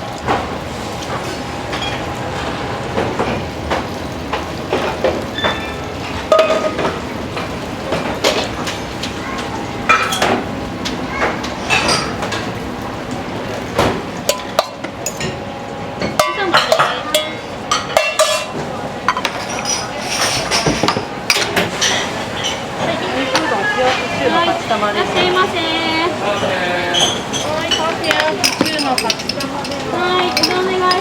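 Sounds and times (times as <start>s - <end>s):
steady background hum: 0.0s - 31.0s
dishes and utensils clinking: 4.7s - 12.6s, 13.8s - 15.4s, 16.0s - 25.5s, 26.2s - 31.0s.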